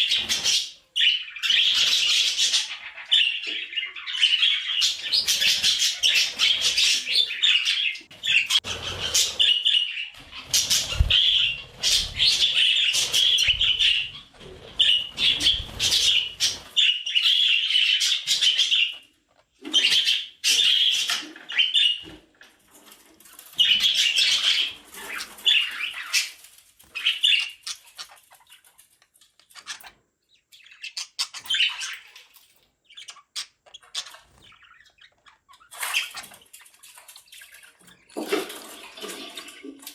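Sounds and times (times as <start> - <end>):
budgerigar chirping and warbling: 29.4 - 32.2, 32.8 - 36.4.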